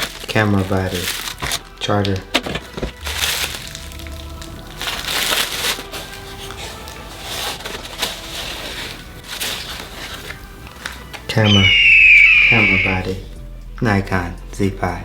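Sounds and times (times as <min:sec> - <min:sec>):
packing paper crinkling: 0:00.0 - 0:11.0
faint music: 0:00.0 - 0:15.0.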